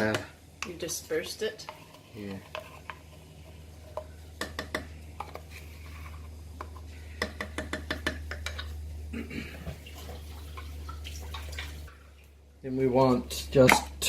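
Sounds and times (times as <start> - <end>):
steady low hum: 0.2 - 14.0
spoon scraping a crockpot: 1.6 - 4.2.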